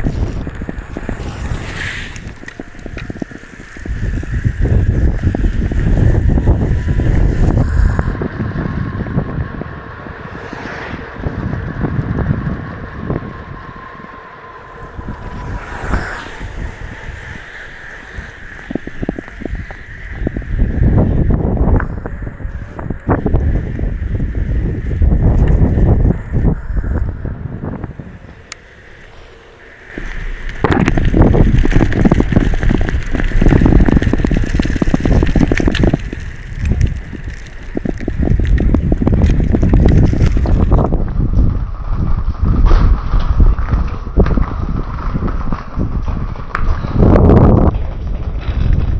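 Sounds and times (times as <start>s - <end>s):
bike rumbling and knocking: 0.0s - 48.9s
wind buffeting microphone: 0.0s - 48.9s.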